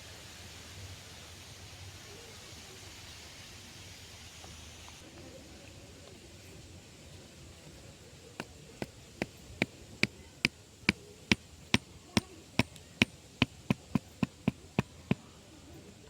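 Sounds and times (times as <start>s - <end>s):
chopping strikes on bamboo: 8.4s - 15.2s.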